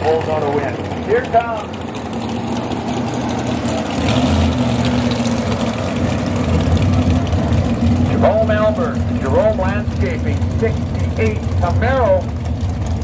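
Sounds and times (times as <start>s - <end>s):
race car engines idling: 0.0s - 13.0s.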